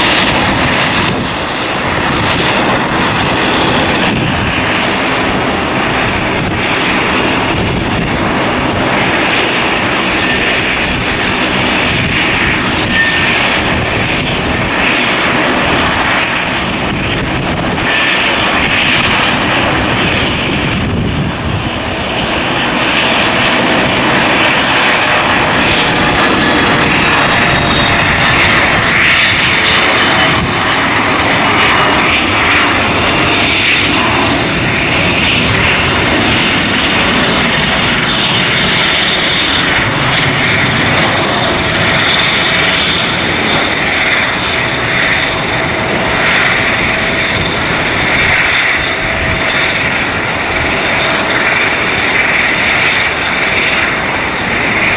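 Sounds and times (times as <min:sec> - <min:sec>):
jet engines running: 0:00.0 - 0:54.9
wind buffeting microphone: 0:00.0 - 0:54.9.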